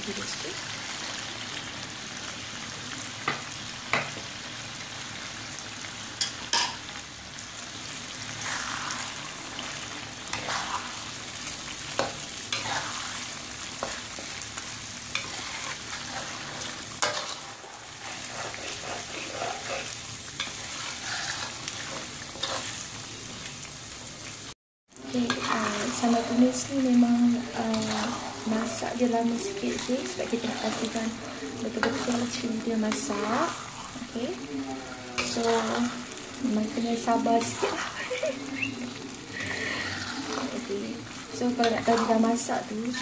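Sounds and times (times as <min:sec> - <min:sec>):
chilli paste sizzling in a wok: 0:00.0 - 0:43.0
spatula scraping a pan: 0:08.4 - 0:14.4, 0:15.1 - 0:22.9, 0:25.2 - 0:34.4, 0:38.9 - 0:43.0.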